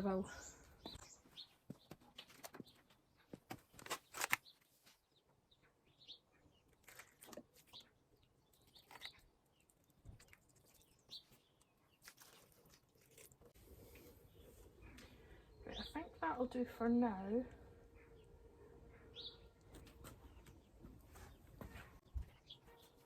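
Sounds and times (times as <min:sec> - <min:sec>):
small birds chirping: 0:00.0 - 0:23.0
rustling and crunching handling: 0:01.2 - 0:05.1, 0:06.6 - 0:15.1.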